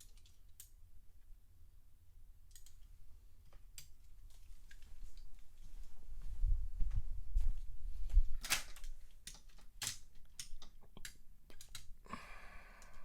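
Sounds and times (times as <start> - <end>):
plastic clicks of toy cars: 8.4 - 11.9.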